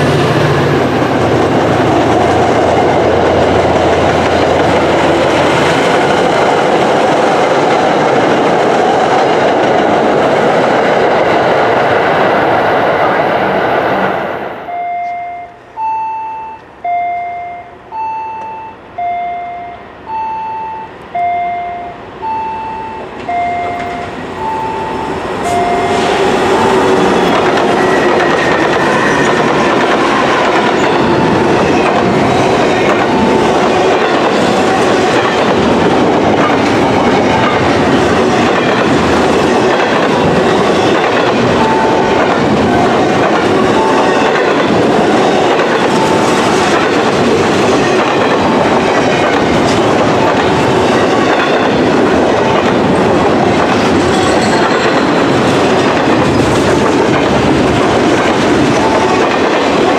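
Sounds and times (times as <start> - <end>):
train wheels rumbling on rail: 0.0 - 14.7, 22.0 - 59.9
two-note warning chime: 14.7 - 26.1.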